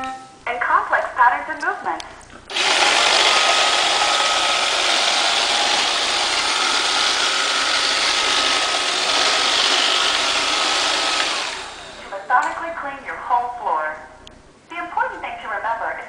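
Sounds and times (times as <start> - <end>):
robot vacuum whirring: 2.5 - 12.2.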